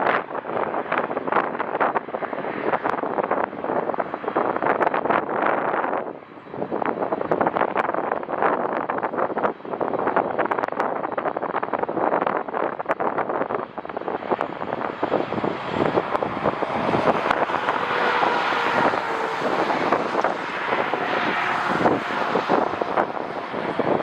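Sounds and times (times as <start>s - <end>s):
wind buffeting microphone: 0.0s - 24.0s
jet airliner passing: 14.0s - 24.0s.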